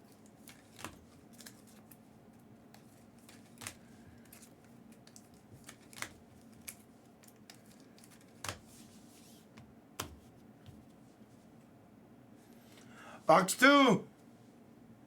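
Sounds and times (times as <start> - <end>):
cards clicking and rustling: 0.2 - 2.0, 2.6 - 8.9.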